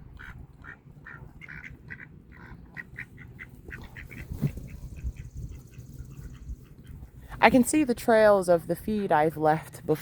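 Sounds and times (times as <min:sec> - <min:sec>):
low steady rumble: 0:00.0 - 0:10.0
ducks quacking: 0:00.1 - 0:07.1.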